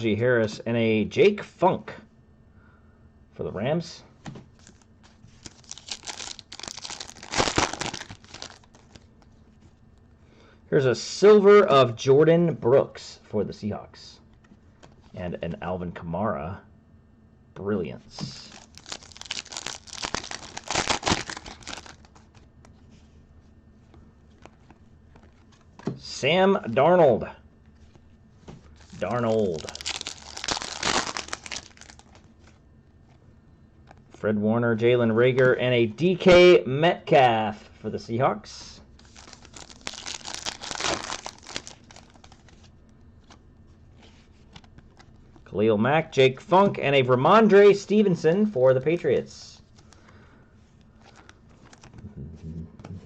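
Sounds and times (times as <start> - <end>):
foil wrapper crinkling and tearing: 4.7 - 9.3, 18.4 - 22.4, 28.8 - 32.3, 39.0 - 43.4.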